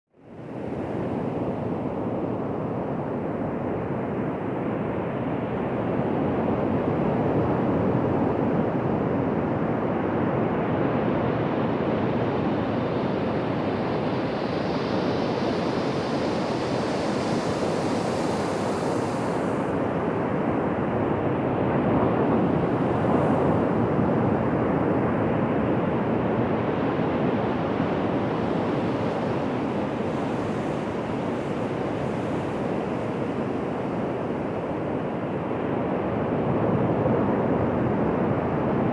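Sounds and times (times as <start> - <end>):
ocean surf breaking on beach: 14.4 - 20.3, 27.4 - 36.7.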